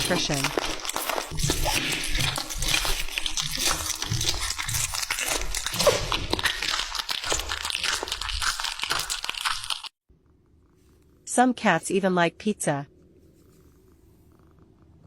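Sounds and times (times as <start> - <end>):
cat chewing food: 0.0 - 9.9.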